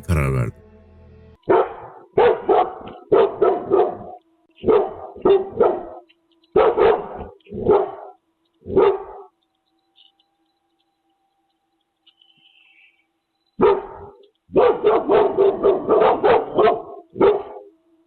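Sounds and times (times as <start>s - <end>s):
dog barking: 17.2s - 17.5s.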